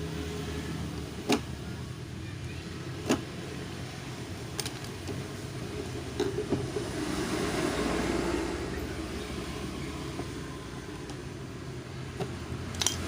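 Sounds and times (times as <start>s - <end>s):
plastic clicks: 12.2s - 13.0s.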